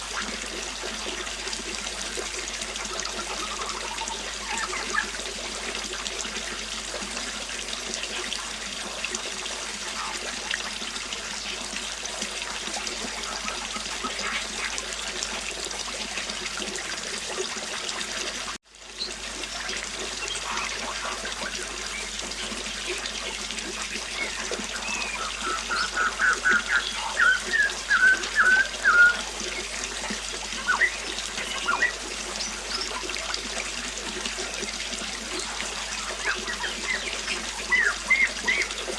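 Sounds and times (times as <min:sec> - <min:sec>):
river water flowing: 0:00.0 - 0:38.9
birds chirping: 0:03.1 - 0:05.2, 0:20.1 - 0:33.2, 0:34.5 - 0:38.9.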